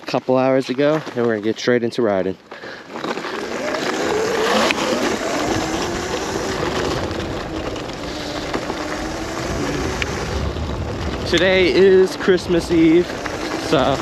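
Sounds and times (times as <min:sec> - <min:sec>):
tyre noise on snow: 0:00.0 - 0:14.0
electric motor whine: 0:03.3 - 0:14.0
wind rushing: 0:04.1 - 0:14.0.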